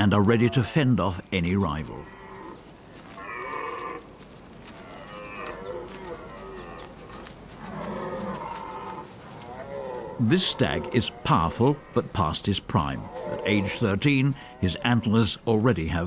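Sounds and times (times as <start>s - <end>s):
red deer stags roaring: 1.9s - 4.1s, 4.7s - 12.1s.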